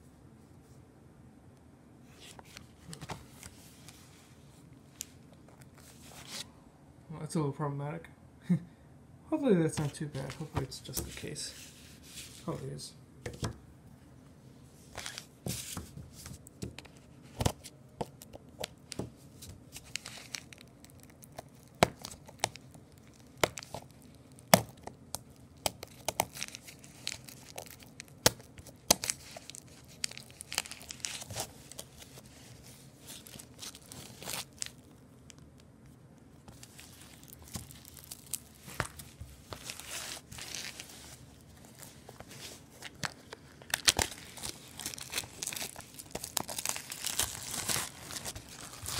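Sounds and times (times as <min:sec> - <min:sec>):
packaging tearing and crinkling: 0:17.3 - 0:35.6, 0:36.5 - 0:48.9.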